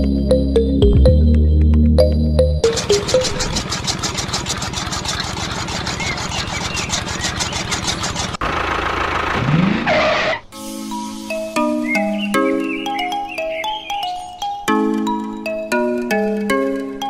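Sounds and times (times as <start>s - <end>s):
chaff cutter clattering: 2.7s - 8.4s
small motor whining: 2.7s - 8.5s.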